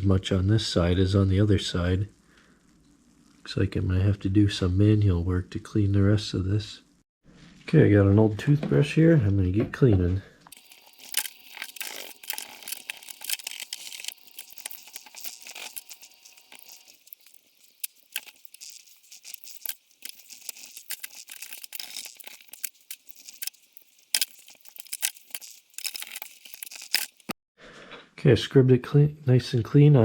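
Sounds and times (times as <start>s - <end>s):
toothbrush scrubbing metal: 10.6s - 27.3s.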